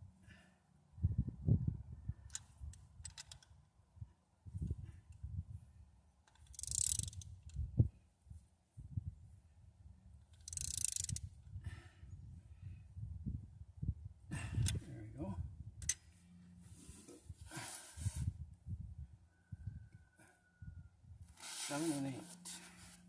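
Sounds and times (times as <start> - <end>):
ratchet wrench clicking: 6.3 - 7.3, 10.3 - 11.3.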